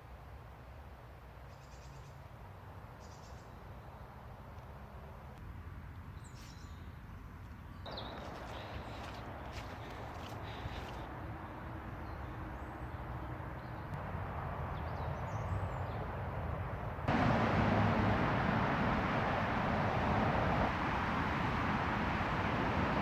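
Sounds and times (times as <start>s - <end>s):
distant road traffic rumble: 2.4s - 23.0s
water rushing from culvert: 7.9s - 11.3s, 17.1s - 23.0s.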